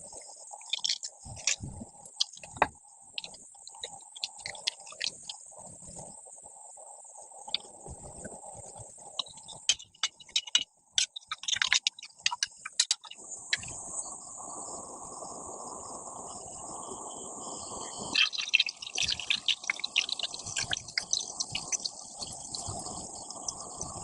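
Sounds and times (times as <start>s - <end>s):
insects chirping: 0.0s - 24.0s
sharp clicks and knocks: 0.6s - 5.4s, 9.2s - 13.8s.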